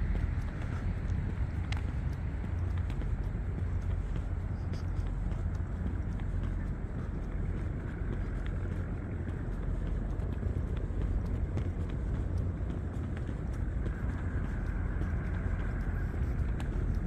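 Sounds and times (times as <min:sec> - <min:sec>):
city and riverside ambience: 0:00.0 - 0:17.0
faint ticks: 0:00.0 - 0:17.0.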